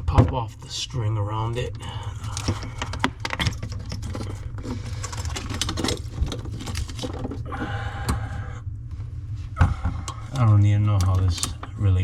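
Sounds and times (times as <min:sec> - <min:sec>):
low hum: 0:00.0 - 0:12.0
clicking and rattling of hoses: 0:10.1 - 0:11.7.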